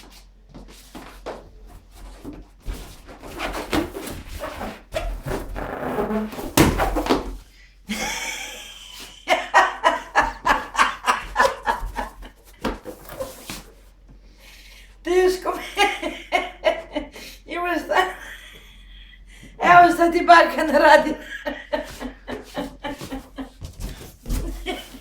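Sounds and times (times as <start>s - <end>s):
balloons rubbing and squeaking: 1.8s - 7.5s, 11.3s - 13.8s, 21.9s - 25.0s.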